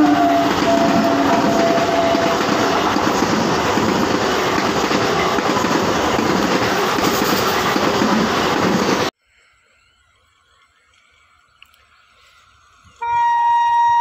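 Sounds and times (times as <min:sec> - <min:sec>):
two-tone train horn: 0:00.0 - 0:03.0, 0:13.0 - 0:14.0
train wheels clattering on rails: 0:00.0 - 0:09.1.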